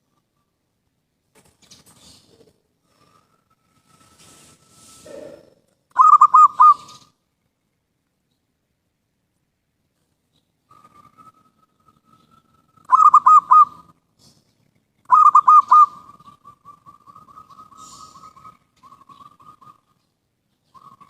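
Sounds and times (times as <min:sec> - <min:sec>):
dove cooing: 0:05.0 - 0:07.1, 0:10.7 - 0:14.0, 0:15.1 - 0:21.0.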